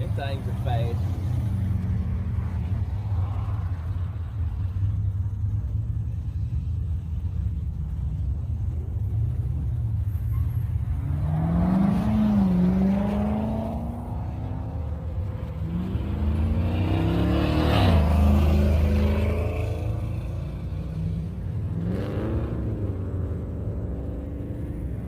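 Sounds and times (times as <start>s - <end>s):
car engines idling: 0.0s - 25.0s
car engine revving: 6.0s - 25.0s.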